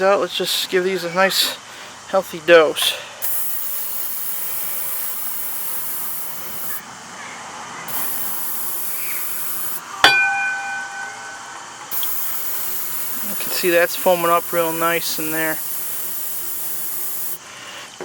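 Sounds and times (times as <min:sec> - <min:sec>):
aerosol spray hissing: 0:03.2 - 0:06.8, 0:07.9 - 0:09.9, 0:11.9 - 0:17.4
metallic clink: 0:07.9 - 0:17.4.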